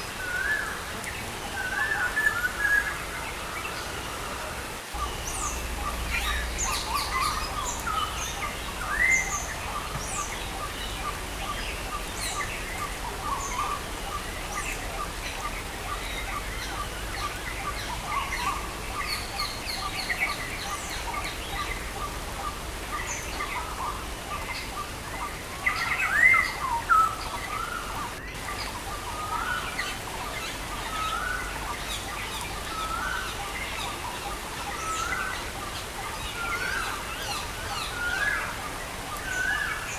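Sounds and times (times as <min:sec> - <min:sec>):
rain hiss: 0:00.0 - 0:39.9
songbirds chirping: 0:00.0 - 0:39.9.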